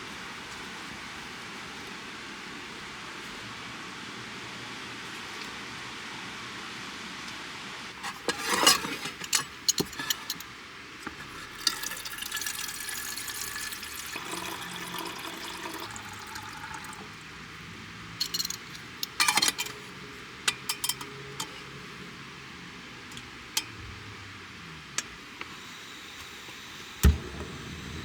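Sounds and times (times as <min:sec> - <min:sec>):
rain hiss: 0:10.0 - 0:18.9, 0:24.0 - 0:28.0
water running: 0:11.2 - 0:17.3.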